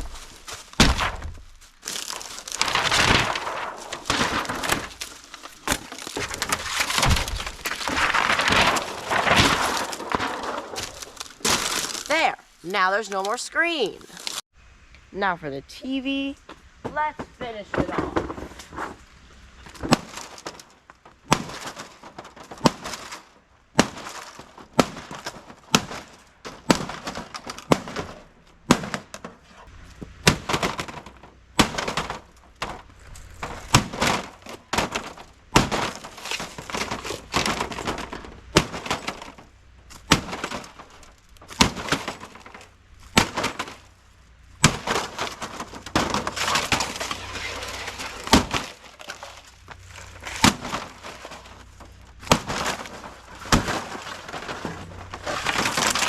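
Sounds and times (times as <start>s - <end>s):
breaking parts cracking and clattering: 0.0s - 12.2s, 30.2s - 56.0s.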